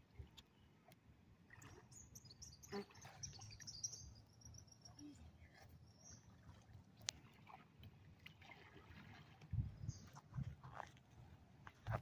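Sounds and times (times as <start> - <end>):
faint high bird chirps: 1.7 - 6.3.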